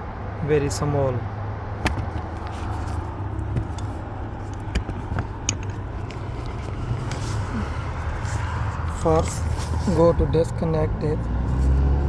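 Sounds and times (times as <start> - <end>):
hand tools clicking and tapping: 3.4 - 7.2.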